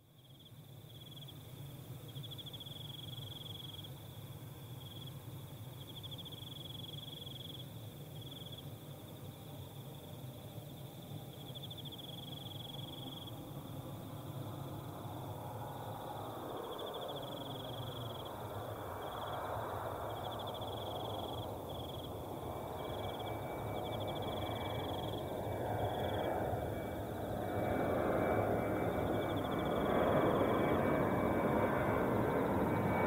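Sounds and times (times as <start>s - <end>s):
thin steady whine: 0.0s - 33.0s
crickets trilling: 0.2s - 33.0s
jet airliner rumble: 10.2s - 33.0s.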